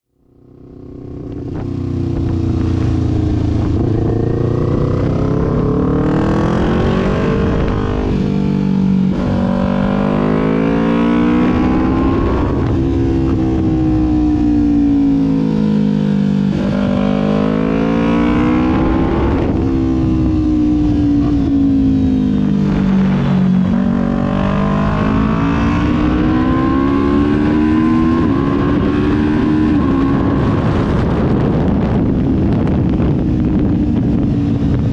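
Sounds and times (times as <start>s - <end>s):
motorcycle engine revving: 0.2s - 34.9s.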